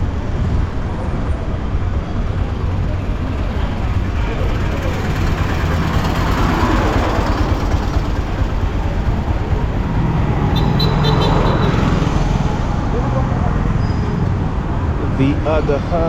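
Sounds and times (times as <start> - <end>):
car rumbling in traffic: 0.0 - 16.0.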